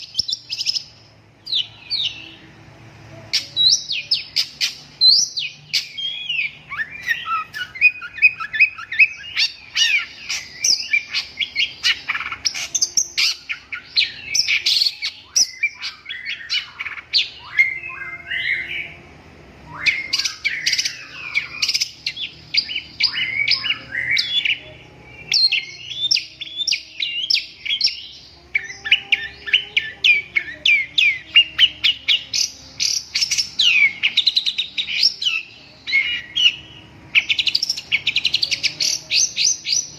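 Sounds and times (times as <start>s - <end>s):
shrike singing chattering song: 0.0s - 39.9s.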